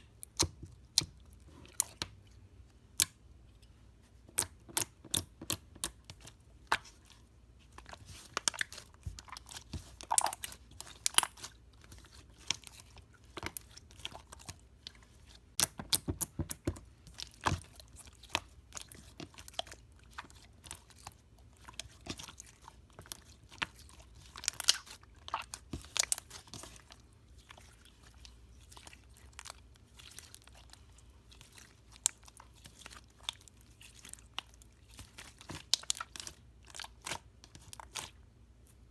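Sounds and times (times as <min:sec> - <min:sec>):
slime crackling and crunching: 0:07.8 - 0:16.1, 0:17.1 - 0:38.2.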